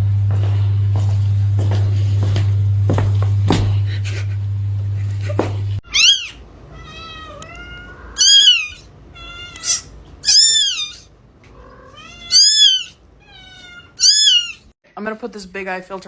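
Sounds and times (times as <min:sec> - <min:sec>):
cat meowing: 0:05.8 - 0:14.7.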